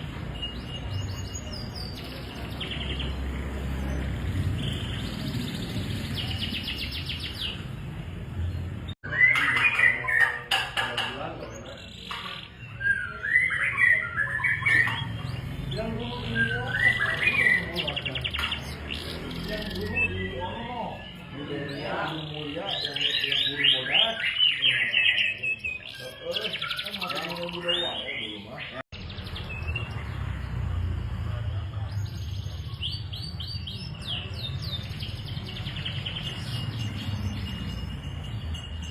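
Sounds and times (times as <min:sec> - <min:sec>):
canary singing: 0:00.0 - 0:30.5, 0:31.9 - 0:38.9.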